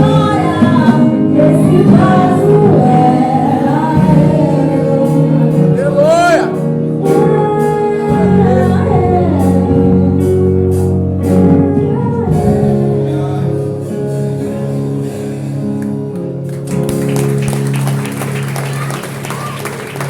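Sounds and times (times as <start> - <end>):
person singing: 0.0 - 15.7
guitar: 0.0 - 20.0
worship band playing chords: 0.0 - 20.0.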